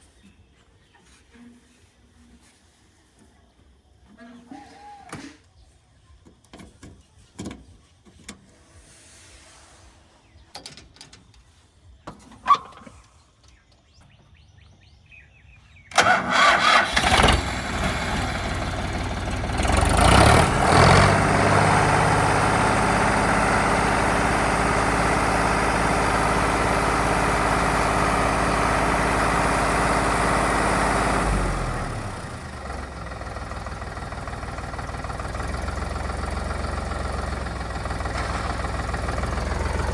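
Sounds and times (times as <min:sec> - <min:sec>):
diesel tractor engine starting and revving: 0:15.8 - 0:39.9.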